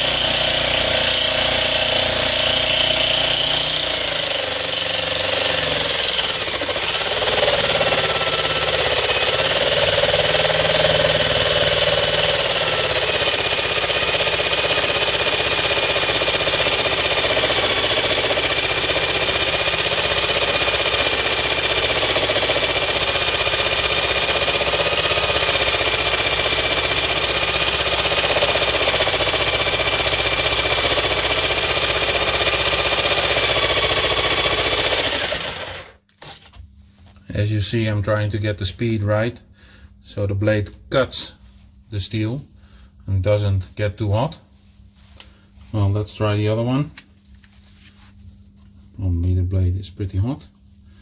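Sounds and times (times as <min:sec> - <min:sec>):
jigsaw sawing through steel: 0:00.0 - 0:36.5.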